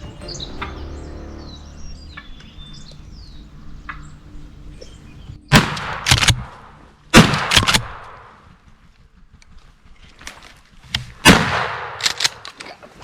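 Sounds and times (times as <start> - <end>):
rolling echo: 0.0 - 8.4
shotgun blasts: 5.5 - 6.5, 7.1 - 8.3, 11.2 - 12.2.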